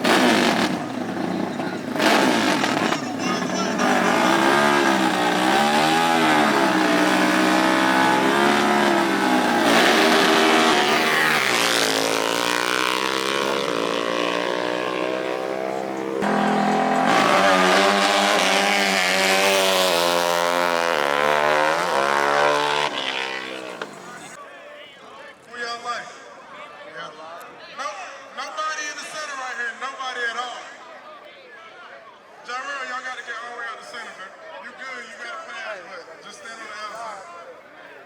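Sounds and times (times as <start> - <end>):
racing engines revving: 0.0 - 24.4.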